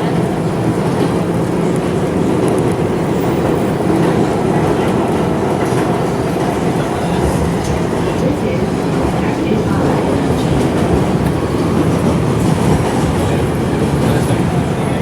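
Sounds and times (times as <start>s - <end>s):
subway train wheels rumbling: 0.0s - 15.0s.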